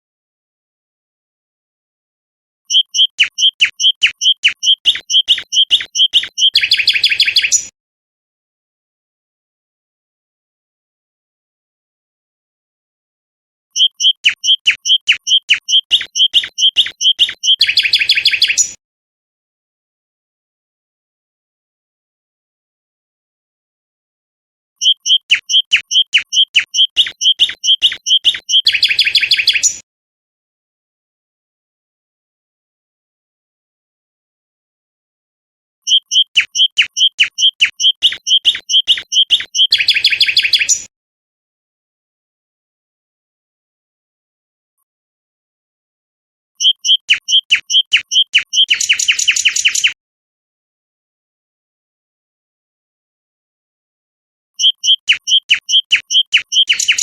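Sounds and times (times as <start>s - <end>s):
songbird singing: 2.7s - 7.7s, 13.8s - 18.8s, 24.8s - 29.8s, 35.8s - 40.9s, 46.6s - 50.0s, 54.6s - 57.0s.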